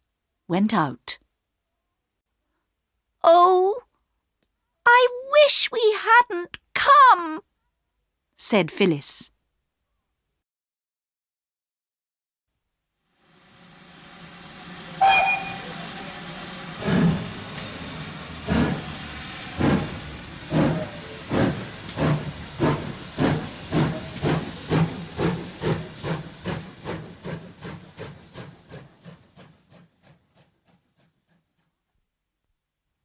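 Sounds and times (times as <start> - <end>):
steam hissing: 13.1 - 31.1
steam locomotive chuffing: 13.2 - 31.7
steam whistle: 13.4 - 18.8.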